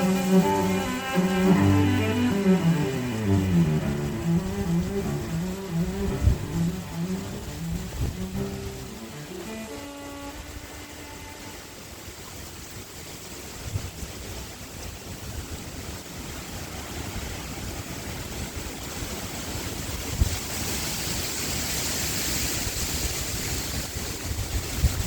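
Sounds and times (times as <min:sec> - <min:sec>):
high hiss: 0:00.0 - 0:12.5
wind gusting against microphone: 0:00.0 - 0:25.0.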